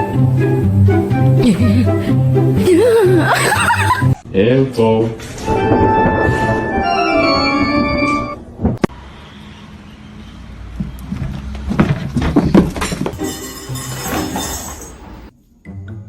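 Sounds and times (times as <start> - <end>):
background music with held chords: 0.0 - 4.2.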